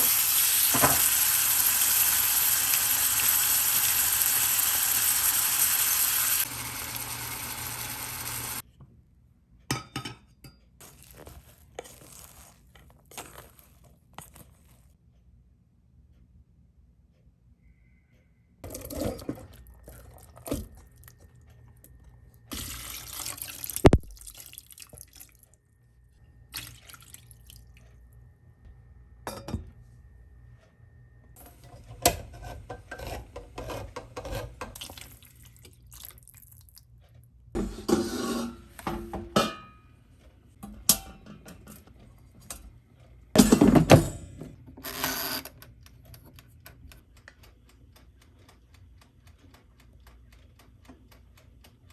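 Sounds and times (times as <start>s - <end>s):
tap water running: 0.0s - 8.6s, 22.5s - 25.5s, 33.6s - 36.4s
dishes and utensils clinking: 9.7s - 12.4s, 37.6s - 39.9s, 40.6s - 42.7s, 43.4s - 44.5s.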